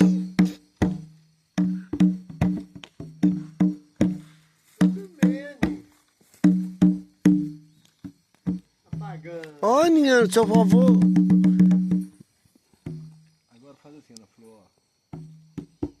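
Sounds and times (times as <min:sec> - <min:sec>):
hand percussion hits: 0:00.0 - 0:09.4, 0:10.3 - 0:12.2.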